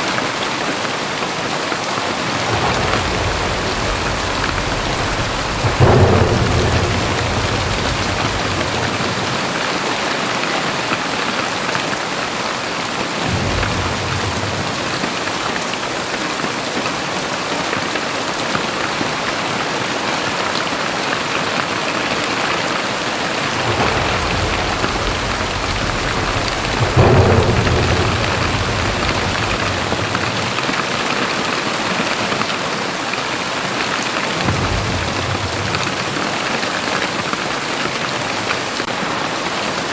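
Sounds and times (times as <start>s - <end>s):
heavy rain pouring: 0.0s - 39.9s
deep low rumbles: 2.2s - 10.0s, 13.3s - 15.4s, 22.8s - 31.4s, 34.4s - 37.4s.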